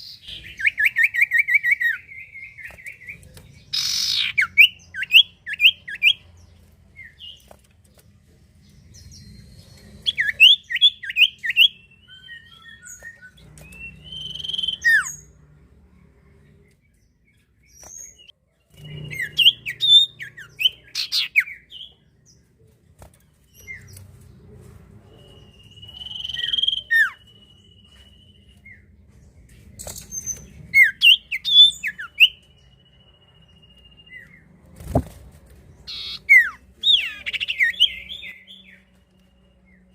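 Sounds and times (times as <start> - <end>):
bird long trill: 0.0 - 6.5, 8.9 - 15.4, 18.0 - 21.9, 25.1 - 28.8, 35.9 - 38.9.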